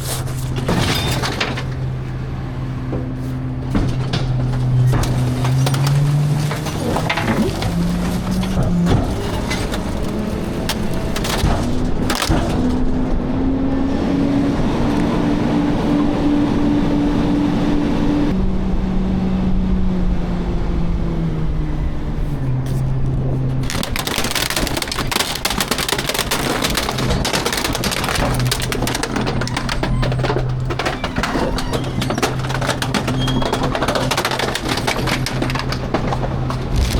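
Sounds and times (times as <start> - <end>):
loud crunching and rattling: 0.0 - 2.5, 3.6 - 13.9, 23.2 - 36.9
garbage truck engine: 0.0 - 36.9.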